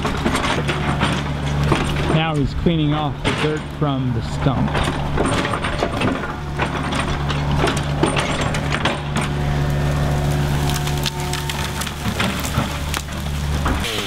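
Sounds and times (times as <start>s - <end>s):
metal clanks and clatters: 0.0s - 13.9s
excavator diesel engine: 0.0s - 14.0s
steady whine: 0.0s - 14.0s
bucket scraping tree stump: 5.9s - 14.0s.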